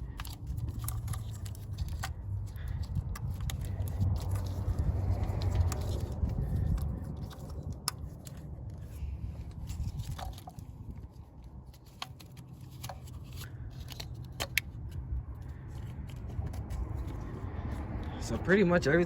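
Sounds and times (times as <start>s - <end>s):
plastic connectors clicking: 0.0s - 9.0s, 11.7s - 17.2s
wiring rustling: 0.0s - 18.0s.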